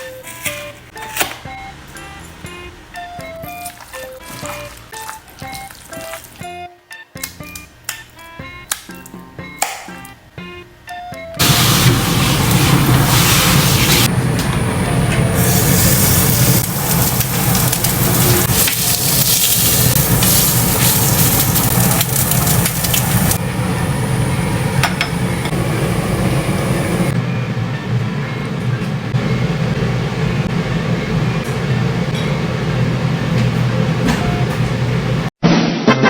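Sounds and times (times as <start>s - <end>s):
food sizzling on a stove: 11.4s - 27.2s
steady low hum: 11.4s - 35.3s.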